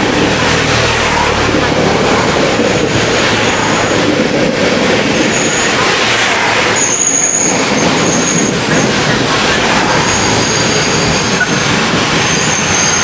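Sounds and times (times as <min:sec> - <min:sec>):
train cars rolling past: 0:00.0 - 0:13.0
wheels and brakes squealing: 0:02.0 - 0:04.6, 0:05.2 - 0:13.0.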